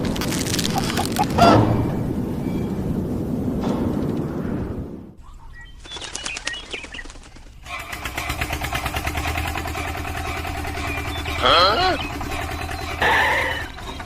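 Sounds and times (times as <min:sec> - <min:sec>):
loud low rumble: 0:00.0 - 0:05.2
electric motor humming and ticking: 0:07.7 - 0:14.0.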